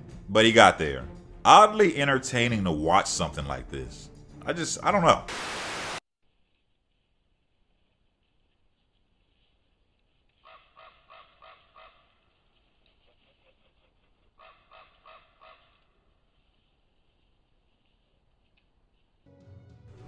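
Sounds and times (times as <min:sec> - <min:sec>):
bird calling: 0:10.4 - 0:12.4, 0:13.0 - 0:16.1.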